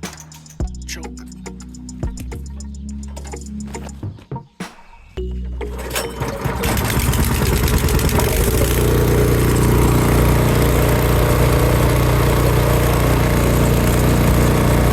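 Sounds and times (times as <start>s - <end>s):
snowblower engine running: 5.8s - 14.9s.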